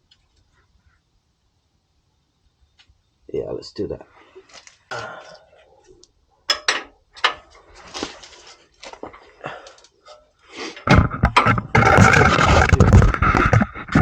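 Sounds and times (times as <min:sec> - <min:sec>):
sharp knocks: 0:10.9 - 0:14.0.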